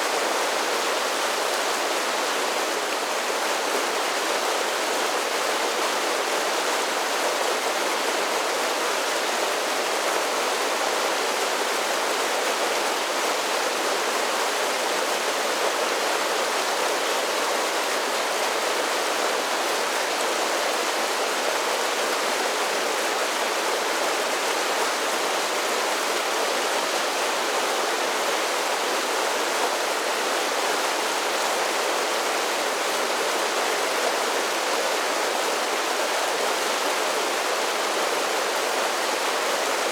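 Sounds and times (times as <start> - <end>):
small waterfalls pouring and splashing: 0.0 - 39.9.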